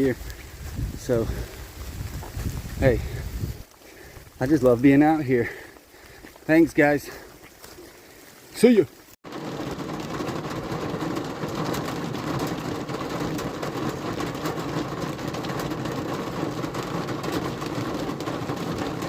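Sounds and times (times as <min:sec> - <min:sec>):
rain ticking on vehicle: 0:07.6 - 0:19.0.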